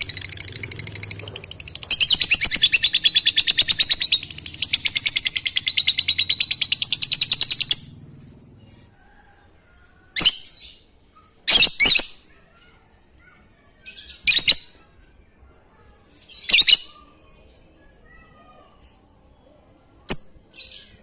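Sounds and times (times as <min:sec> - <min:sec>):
lovebird shrill calls: 0:11.5 - 0:12.2.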